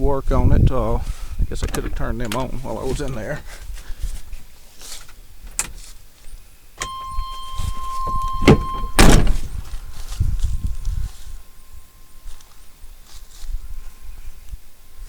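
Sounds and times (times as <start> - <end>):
electronic warning tone: 6.8 - 9.4
truck door shutting: 6.8 - 9.7.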